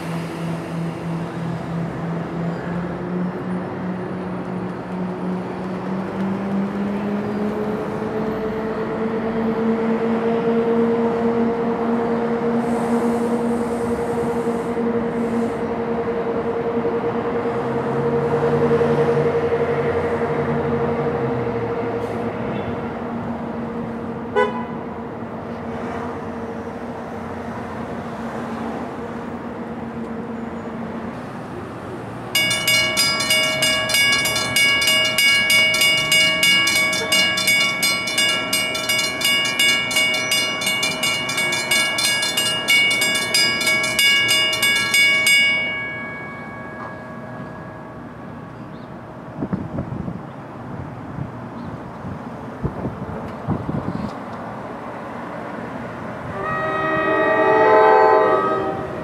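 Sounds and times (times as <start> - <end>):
train two-note hum: 0.0 - 49.4, 54.4 - 59.0
bell ringing rapidly: 32.4 - 47.5.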